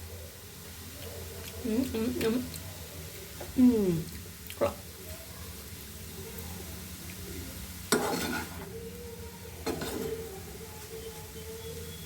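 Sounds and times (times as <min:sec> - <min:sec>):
spoon stirring in a pan: 0:06.3 - 0:12.0
metal clattering on pan: 0:07.9 - 0:08.6, 0:09.6 - 0:10.2.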